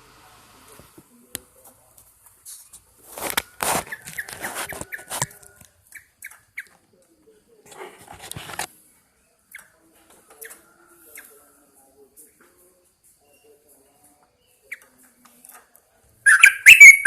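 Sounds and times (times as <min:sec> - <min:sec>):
bird calling in quick chirps: 0:16.3 - 0:17.0.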